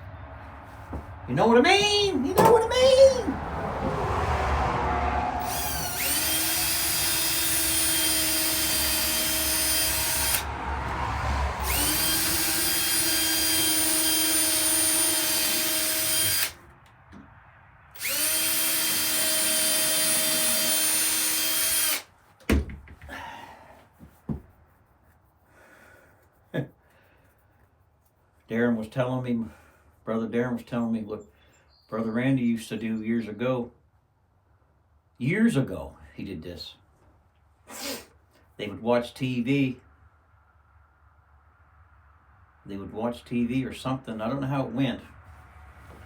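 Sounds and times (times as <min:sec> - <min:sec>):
electric drill whining: 0:05.4 - 0:10.5, 0:11.6 - 0:16.6, 0:18.0 - 0:22.1.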